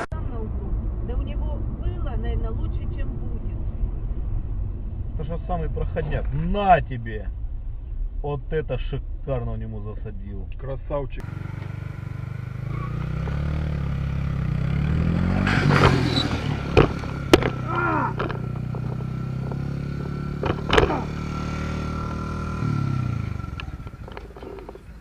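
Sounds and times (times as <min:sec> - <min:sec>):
vehicle engine running: 0:00.0 - 0:25.0
sharp knocks or bangs: 0:15.4 - 0:19.6.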